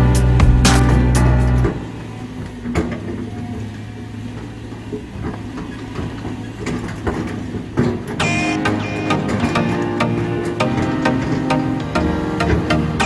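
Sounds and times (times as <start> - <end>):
background music: 0.0 - 2.0, 8.2 - 13.0
diesel engine running: 0.0 - 4.3.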